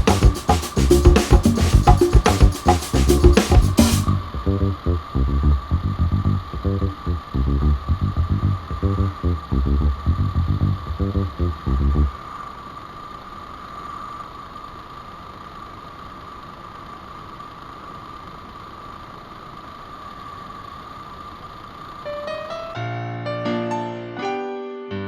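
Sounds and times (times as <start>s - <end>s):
heavy low thumps: 0.0s - 4.8s
steady whine: 0.0s - 22.9s.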